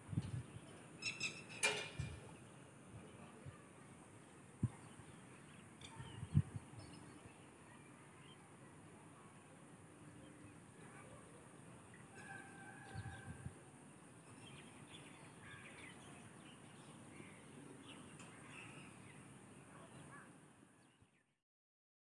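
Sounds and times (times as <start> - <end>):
distant bird calls: 0.6 - 4.0, 14.2 - 21.0.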